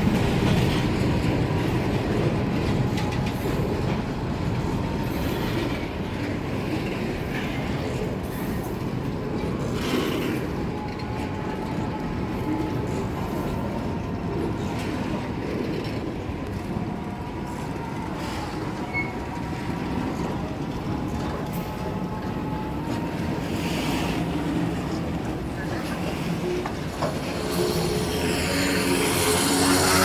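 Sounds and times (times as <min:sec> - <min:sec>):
train rumbling: 0:00.0 - 0:30.0
wheels clacking over rail joints: 0:00.0 - 0:30.0
faint thin squeal: 0:18.2 - 0:19.3.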